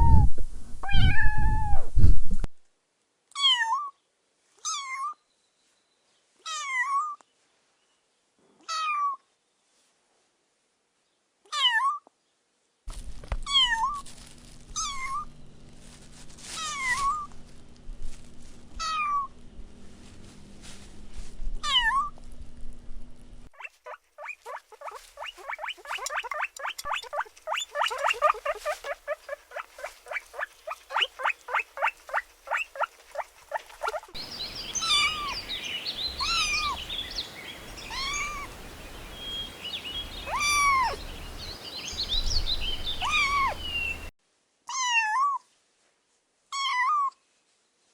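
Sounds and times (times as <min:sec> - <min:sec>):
kitten chirps: 0:00.0 - 0:01.8, 0:14.8 - 0:15.2, 0:33.8 - 0:35.5, 0:36.1 - 0:36.8, 0:37.8 - 0:38.6, 0:40.2 - 0:41.0, 0:42.2 - 0:44.1
kittens meowing: 0:00.8 - 0:01.7, 0:33.8 - 0:44.1.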